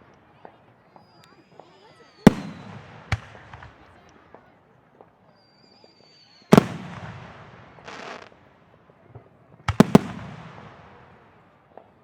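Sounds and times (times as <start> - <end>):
firework whistle: 0.8 - 2.9, 5.3 - 6.8.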